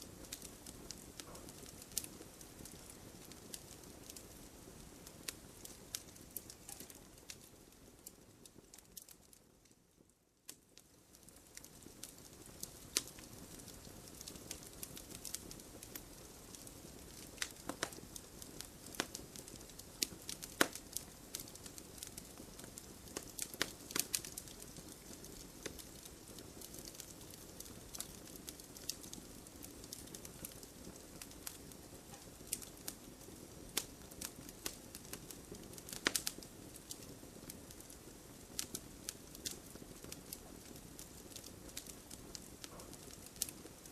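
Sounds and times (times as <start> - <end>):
wood fire crackling: 0.0 - 43.9
sharp pops and snaps: 17.1 - 18.2, 18.8 - 26.8, 35.9 - 37.0.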